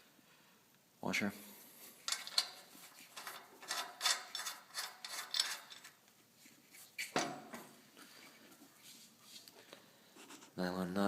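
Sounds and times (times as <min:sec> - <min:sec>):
metal hardware scraping: 0:02.0 - 0:06.0.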